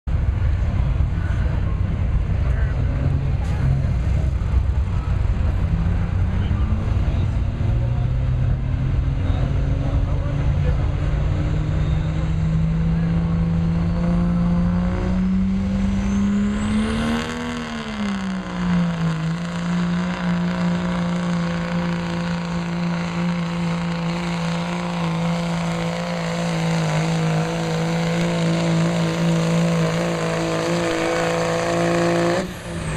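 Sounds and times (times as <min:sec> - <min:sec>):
truck engine at high revs: 0:00.1 - 0:32.9.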